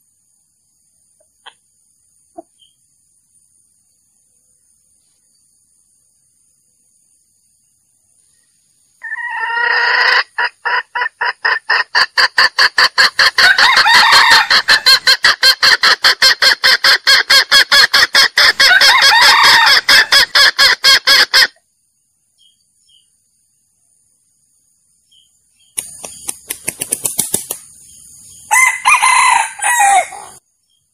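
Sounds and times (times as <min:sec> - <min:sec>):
jungle fowl call: 0:09.0 - 0:21.6, 0:28.5 - 0:30.4
fast loud clucks: 0:09.7 - 0:21.6, 0:25.8 - 0:27.8.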